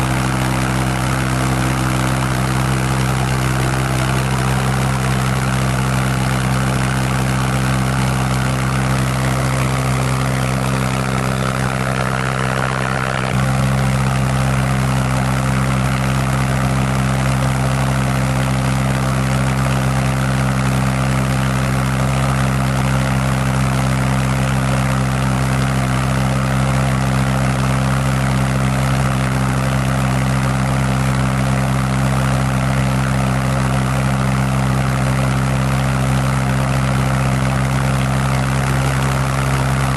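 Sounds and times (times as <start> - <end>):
pulse jet engine drone: 0.0 - 19.5.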